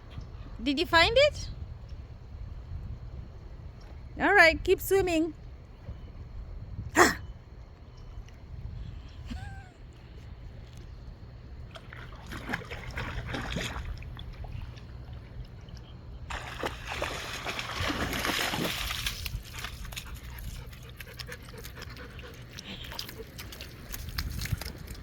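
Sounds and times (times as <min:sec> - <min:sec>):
dog splashing in water: 0:11.7 - 0:25.0.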